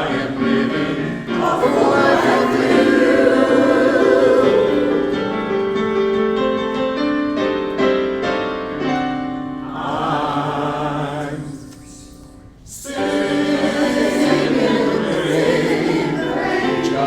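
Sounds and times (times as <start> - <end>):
wavering held vocal: 0.0 - 5.3
choir holding a chord: 0.0 - 6.0, 9.4 - 17.0.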